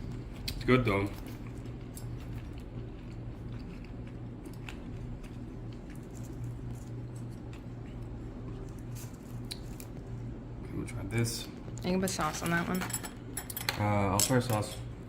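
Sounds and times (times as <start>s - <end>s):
steady low hum: 0.0s - 15.0s
person chewing: 1.2s - 10.1s.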